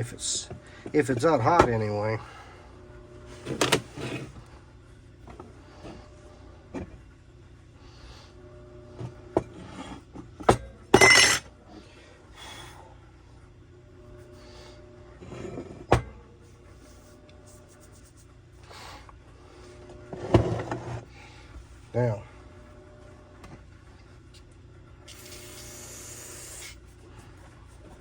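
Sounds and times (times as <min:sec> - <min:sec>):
metal tools clinking on workbench: 0:11.0 - 0:11.5.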